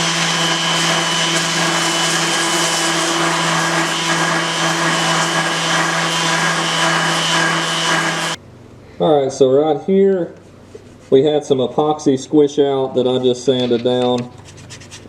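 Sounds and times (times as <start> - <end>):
electric sander running: 0.0 - 8.4.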